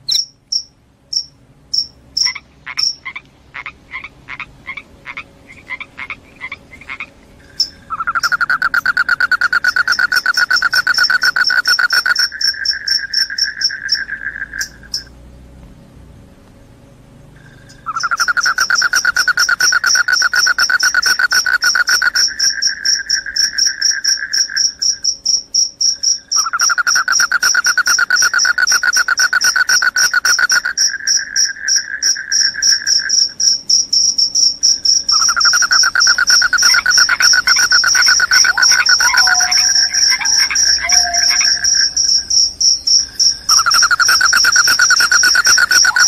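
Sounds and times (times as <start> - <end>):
crickets chirping in trills: 0.0 - 15.5, 17.2 - 46.0.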